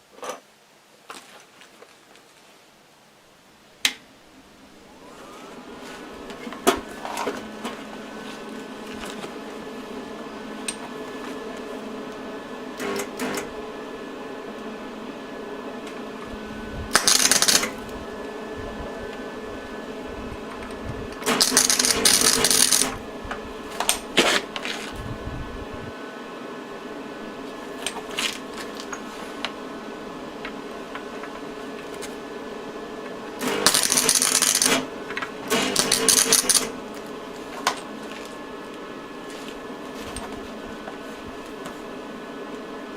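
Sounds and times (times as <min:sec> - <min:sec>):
steady hum: 0:03.0 - 0:42.9
arc welding bursts: 0:16.9 - 0:17.8, 0:21.2 - 0:23.0, 0:33.4 - 0:34.9.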